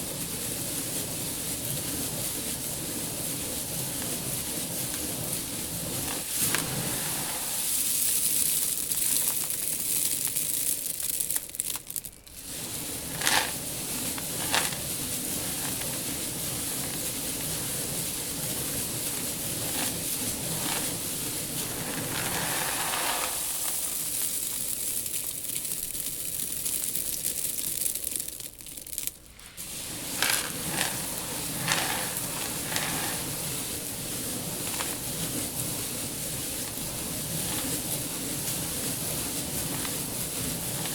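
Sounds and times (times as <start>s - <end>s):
seed rustling and hissing: 0.0s - 40.9s
sharp crackles: 5.9s - 15.9s, 19.0s - 40.9s.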